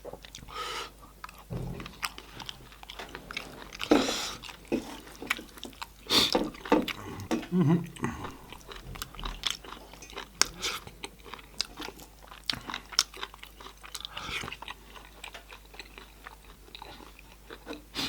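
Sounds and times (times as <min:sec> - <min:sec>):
chewing and biting meat: 0:01.2 - 0:18.0.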